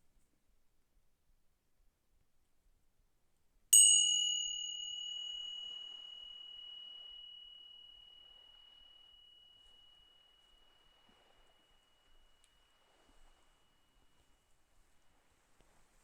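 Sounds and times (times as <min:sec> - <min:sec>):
small metal bell ringing: 0:03.8 - 0:11.3.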